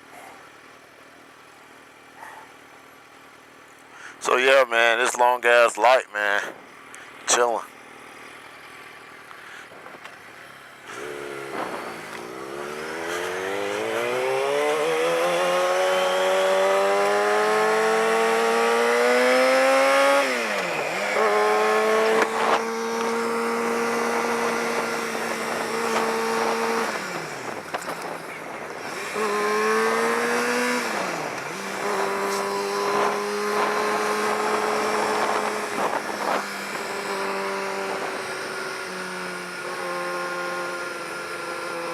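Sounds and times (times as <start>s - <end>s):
motorcycle engine revving: 6.3s - 41.9s
wind noise: 11.2s - 14.2s, 31.8s - 37.0s.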